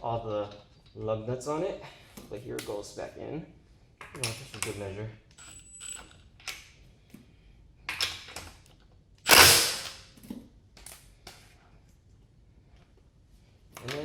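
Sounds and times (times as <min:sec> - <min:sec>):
impact driver bursts: 0:09.3 - 0:10.0.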